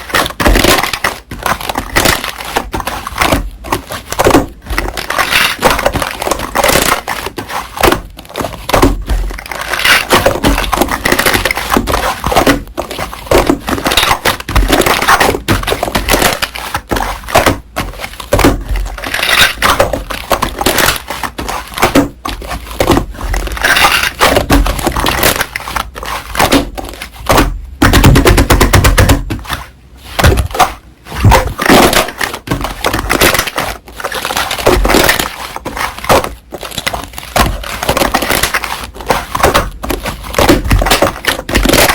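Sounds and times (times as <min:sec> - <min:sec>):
slime squeezed and crackling: 0:00.0 - 0:08.2, 0:08.9 - 0:16.6.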